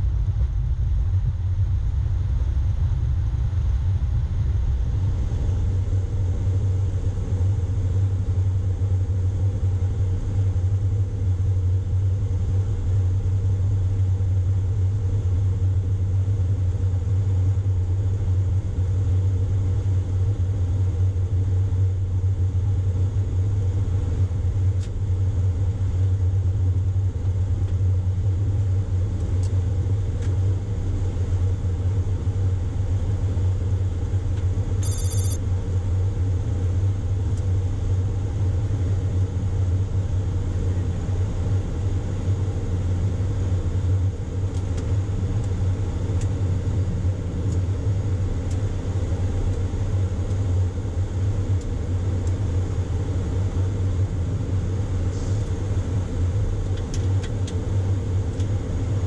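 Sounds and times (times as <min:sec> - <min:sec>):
low cockpit rumble: 0:00.0 - 0:59.0
high-pitched ringing tone: 0:34.8 - 0:35.4.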